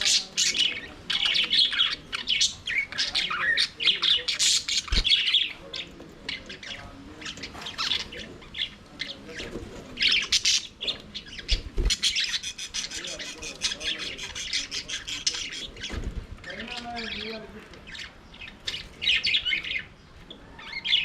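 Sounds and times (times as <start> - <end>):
budgerigars chirping and warbling: 0.0 - 21.0.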